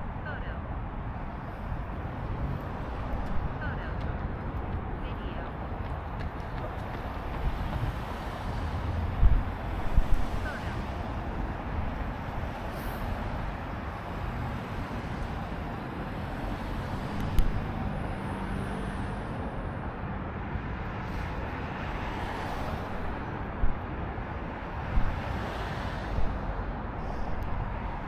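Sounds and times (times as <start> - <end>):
road and traffic noise: 0.0 - 28.0
wind noise on microphone: 1.6 - 13.8, 21.0 - 28.0.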